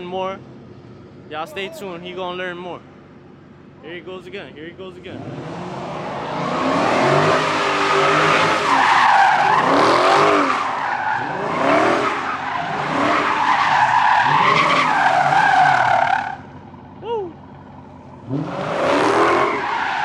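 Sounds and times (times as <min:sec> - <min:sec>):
car engine revving: 0:05.0 - 0:16.9, 0:17.5 - 0:20.0.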